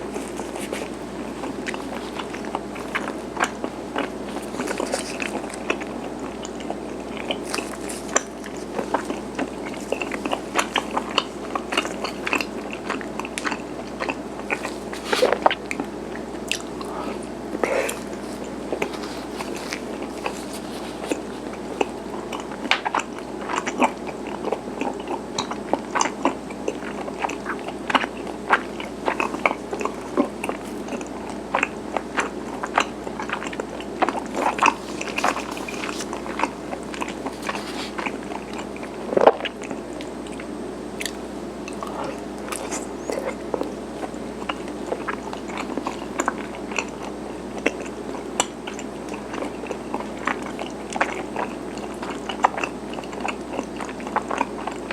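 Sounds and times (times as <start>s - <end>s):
chewing sticky rice cakes: 0.0s - 54.9s
soft sticky mouth smacks: 16.5s - 23.0s.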